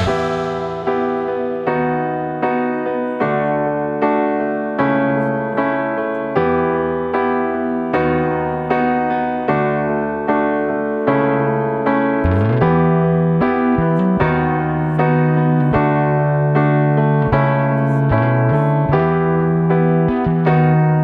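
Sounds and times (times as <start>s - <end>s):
held bass line: 0.0s - 2.4s, 12.2s - 21.0s
electric piano chords: 0.0s - 21.0s.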